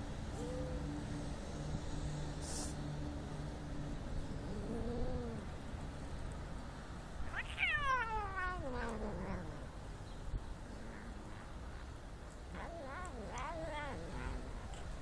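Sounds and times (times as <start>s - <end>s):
cat meowing: 7.3s - 9.6s, 12.5s - 14.8s.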